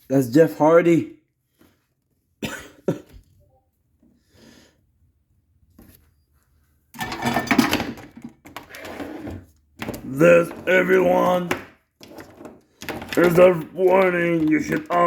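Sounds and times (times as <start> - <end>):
person coughing: 2.4 - 3.2.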